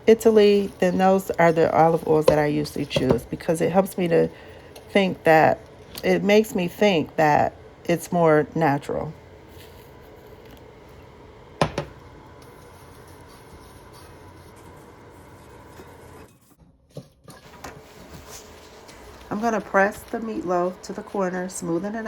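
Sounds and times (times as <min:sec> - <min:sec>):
kitchen handling noise: 0:01.8 - 0:03.4, 0:11.6 - 0:12.0.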